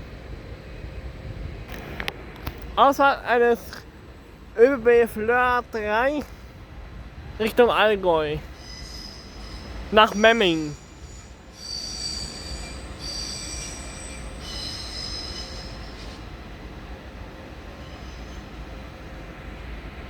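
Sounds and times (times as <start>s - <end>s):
low train rumble: 0.0s - 20.0s
train wheels squealing: 8.4s - 16.4s, 17.7s - 18.7s.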